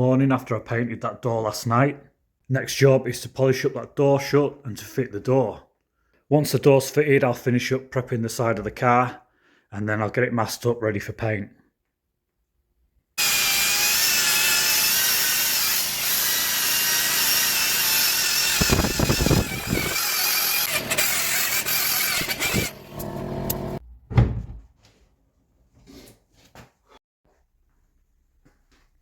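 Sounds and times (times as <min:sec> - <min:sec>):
electric polisher whining: 0:13.2 - 0:23.8
sharp thump: 0:24.1 - 0:24.6.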